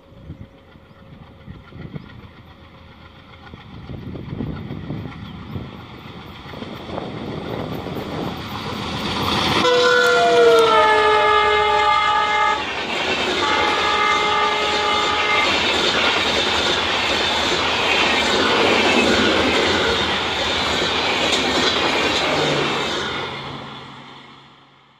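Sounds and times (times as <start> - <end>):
train coaches rumbling past: 0.0 - 24.9
locomotive horn blasts: 9.6 - 12.7, 13.4 - 15.6.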